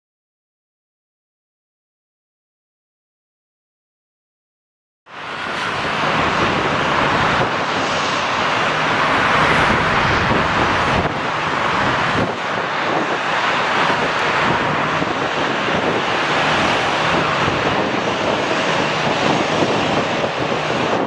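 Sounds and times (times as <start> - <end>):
jet engines roaring: 5.1 - 21.0.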